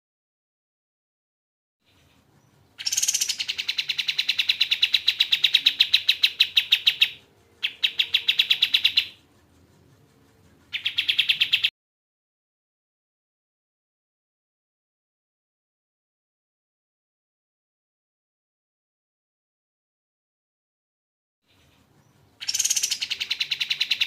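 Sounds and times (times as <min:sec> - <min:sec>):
bird rapid chirping song: 0:01.9 - 0:11.7, 0:21.5 - 0:24.0.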